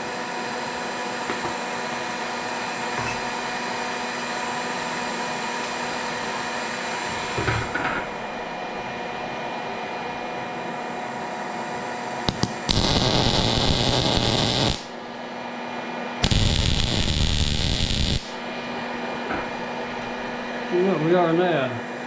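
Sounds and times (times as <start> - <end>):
arc welding crackling hiss: 12.3 - 15.1, 16.2 - 18.4
steady hum: 12.3 - 20.8.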